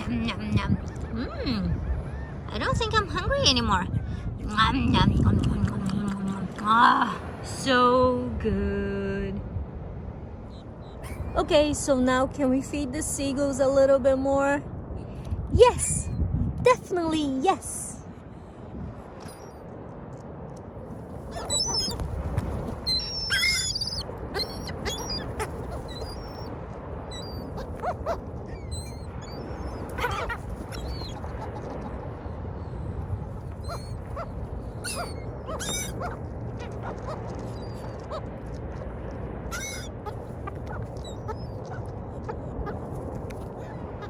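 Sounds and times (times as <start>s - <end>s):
low background rush: 0.0s - 44.0s
seagulls squawking: 21.2s - 26.5s, 27.1s - 38.3s, 39.5s - 44.0s.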